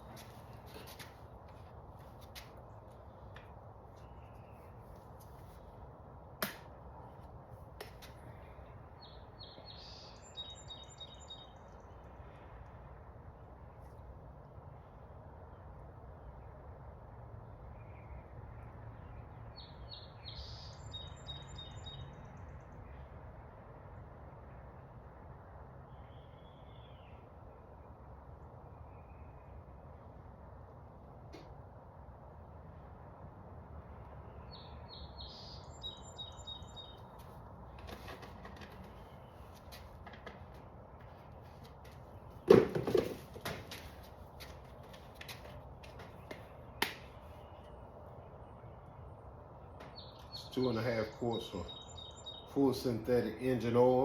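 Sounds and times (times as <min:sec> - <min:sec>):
small bird chirping: 0:34.5 - 0:37.2.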